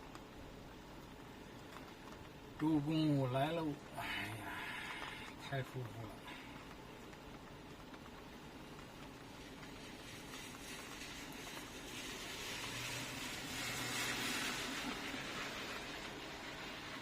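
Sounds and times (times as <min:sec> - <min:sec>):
rain hissing: 0:00.0 - 0:17.0
vehicle passing on wet road: 0:09.2 - 0:17.0.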